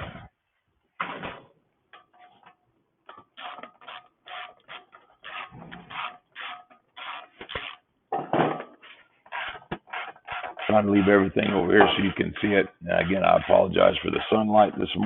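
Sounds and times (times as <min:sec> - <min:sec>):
tools scraping and clattering: 0:01.0 - 0:12.6.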